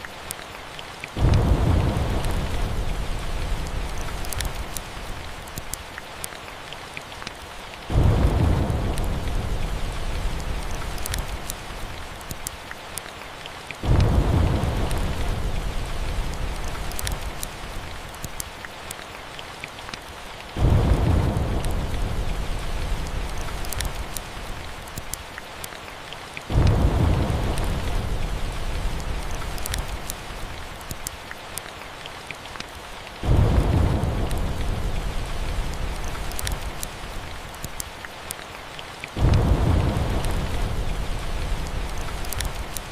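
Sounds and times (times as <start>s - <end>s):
steady rain: 0.0s - 42.9s
thunder rumbling: 1.2s - 5.4s, 7.9s - 12.3s, 13.8s - 18.1s, 20.5s - 24.8s, 26.5s - 30.8s, 33.2s - 37.6s, 39.2s - 42.9s.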